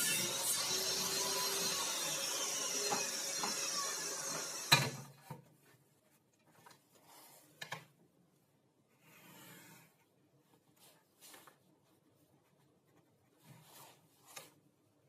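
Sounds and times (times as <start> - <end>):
power tool motor winding down: 0.0 - 5.0
faint handling clicks and rubs: 8.9 - 14.8.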